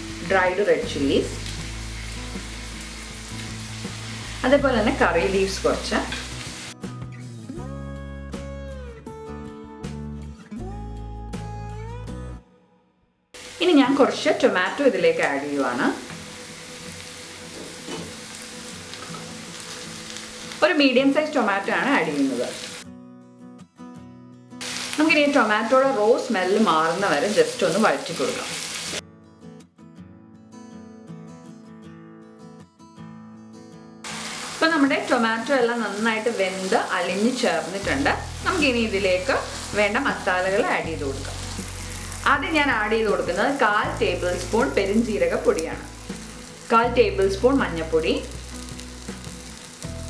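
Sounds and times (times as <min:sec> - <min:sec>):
vegetables sizzling in oil: 0:00.0 - 0:06.8, 0:13.4 - 0:22.8, 0:24.6 - 0:29.0, 0:34.1 - 0:50.0
acoustic guitar music: 0:16.1 - 0:20.6, 0:22.8 - 0:24.6, 0:29.0 - 0:35.6.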